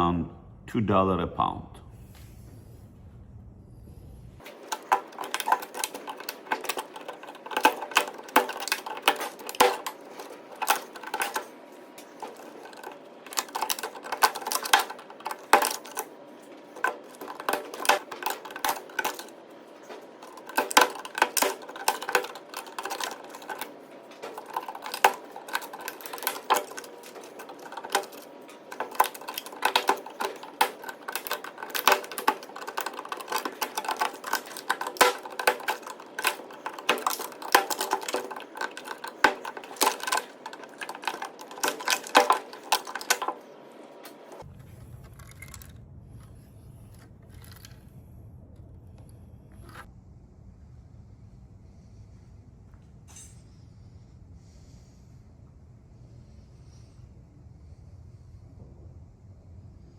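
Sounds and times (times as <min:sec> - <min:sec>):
hand tools clinking on metal: 0:04.5 - 0:43.4.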